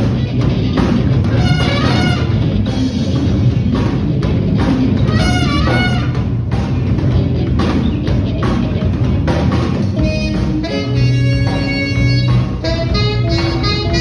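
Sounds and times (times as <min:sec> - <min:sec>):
bass line: 0:00.0 - 0:14.0
drum kit beat: 0:00.0 - 0:14.0
lead instrument bending phrases: 0:01.3 - 0:02.8, 0:10.0 - 0:14.0.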